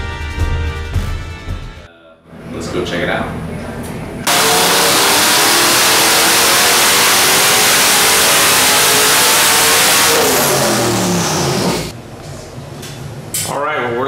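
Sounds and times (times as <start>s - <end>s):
turbo whine dropping in pitch: 4.3s - 11.9s
engine revving loud: 4.3s - 12.0s.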